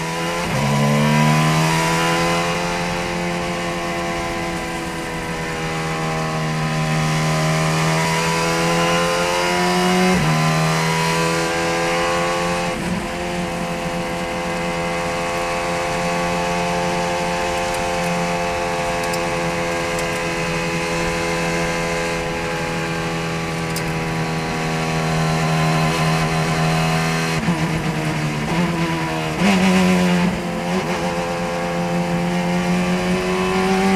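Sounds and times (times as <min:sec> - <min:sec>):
racing car engine at high revs: 0:00.0 - 0:33.9.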